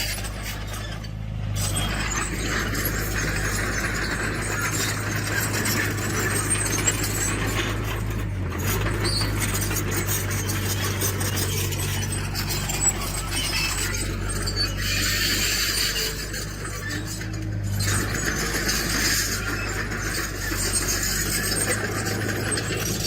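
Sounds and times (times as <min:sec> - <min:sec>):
crawler tracks clanking and squeaking: 0:00.0 - 0:23.0
diesel engine running: 0:00.0 - 0:23.0.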